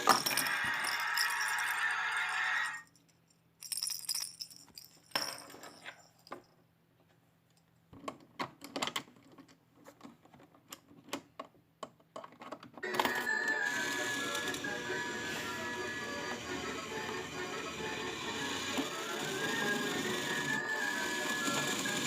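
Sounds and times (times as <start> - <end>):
toy claw machine clicks and rattles: 0.0 - 2.8, 12.8 - 22.0.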